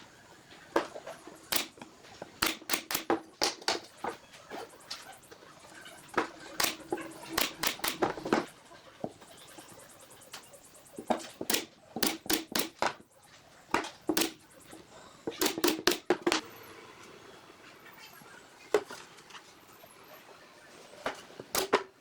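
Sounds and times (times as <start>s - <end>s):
sharp knocks and clatters: 0.8s - 5.4s, 10.3s - 16.4s.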